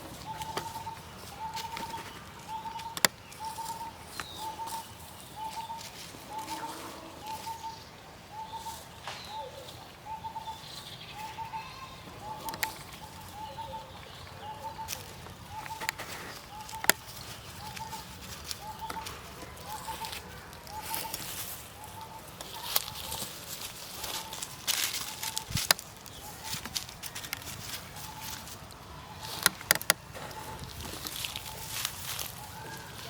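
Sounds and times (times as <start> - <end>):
bird calling: 0.0 - 33.0
sharp clicks: 2.6 - 3.5, 12.4 - 12.8, 16.7 - 17.1, 29.2 - 30.4.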